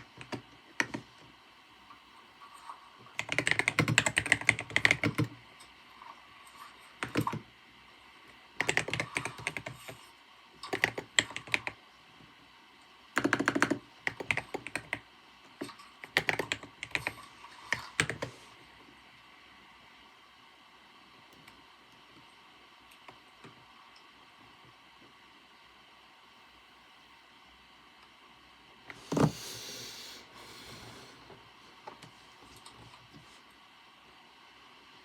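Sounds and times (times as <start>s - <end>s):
typing on computer keyboard: 0.0s - 1.3s, 2.6s - 5.4s, 6.6s - 7.5s, 8.6s - 11.8s, 13.2s - 18.4s.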